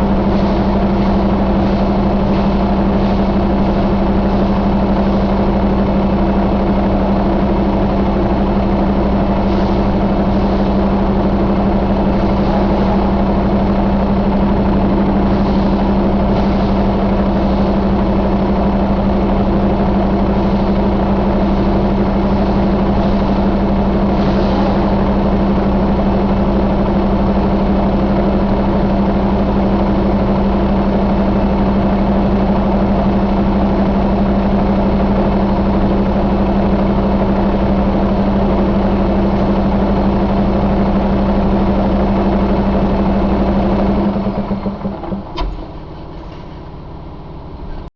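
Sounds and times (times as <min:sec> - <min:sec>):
diesel engine idling: 0:00.0 - 0:47.9.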